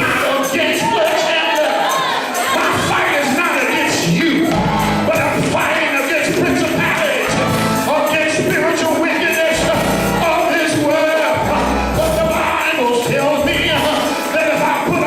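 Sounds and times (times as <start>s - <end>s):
band playing: 0.0s - 15.0s
voices singing gospel: 0.0s - 15.0s.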